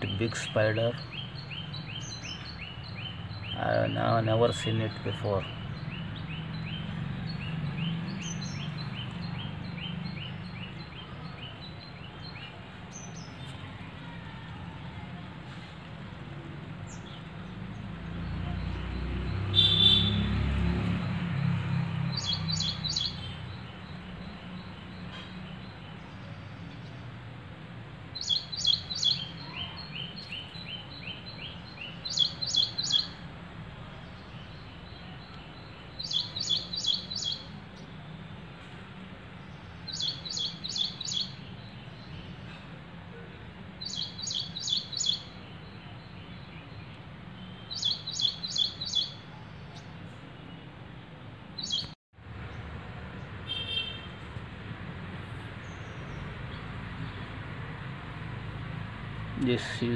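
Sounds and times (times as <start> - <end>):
bird chirping: 0.0 - 13.6, 16.9 - 20.4, 22.0 - 27.1, 28.1 - 33.3, 34.0 - 38.0, 39.4 - 42.7, 43.8 - 50.8, 51.6 - 52.0.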